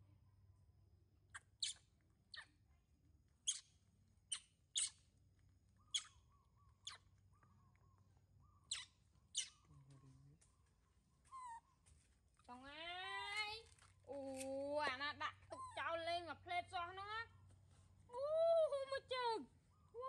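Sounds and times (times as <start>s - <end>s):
small bird chirping: 0.6s - 2.6s, 3.4s - 11.7s.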